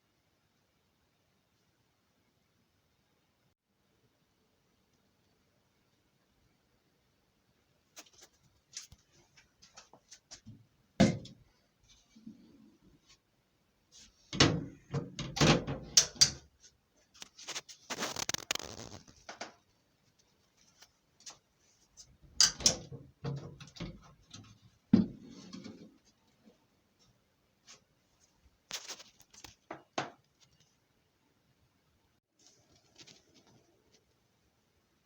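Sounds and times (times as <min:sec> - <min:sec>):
tiling knocks and clatter: 0:22.3 - 0:26.0.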